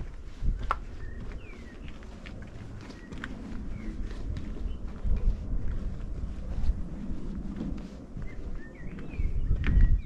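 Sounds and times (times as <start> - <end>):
wind rumble on microphone: 0.0 - 10.0
small bird chirping: 0.8 - 4.9.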